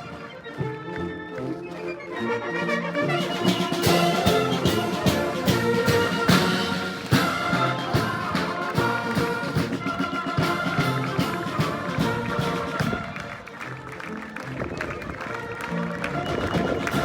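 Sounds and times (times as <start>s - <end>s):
military band brass chords: 0.0s - 17.0s
drum strikes: 3.6s - 13.1s.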